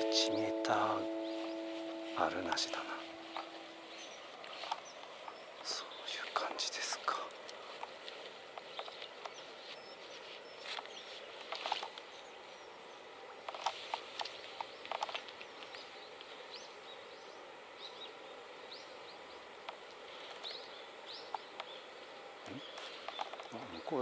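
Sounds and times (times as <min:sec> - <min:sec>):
small birds chirping: 0:00.0 - 0:24.0
short clicks and rustles: 0:10.7 - 0:12.1, 0:13.5 - 0:15.8.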